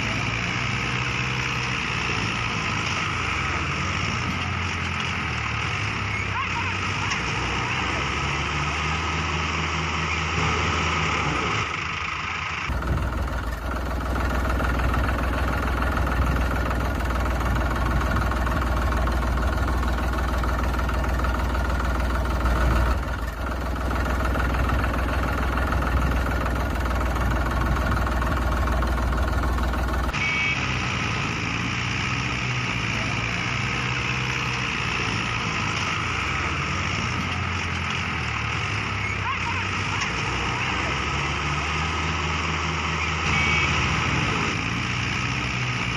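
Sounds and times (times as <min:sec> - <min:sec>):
heavy diesel engines rumbling: 0:00.0 - 0:45.9
higher engine tones: 0:00.0 - 0:45.9.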